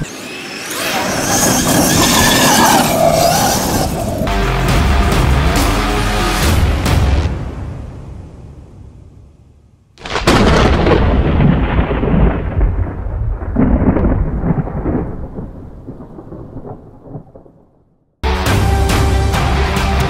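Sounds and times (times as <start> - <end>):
music: 4.3 - 9.6, 18.2 - 20.0
thunderclap with rumble: 10.0 - 17.9.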